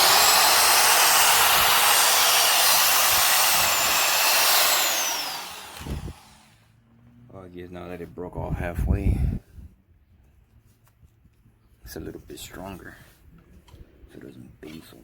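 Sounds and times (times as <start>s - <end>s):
power tool whining: 0.0s - 6.6s.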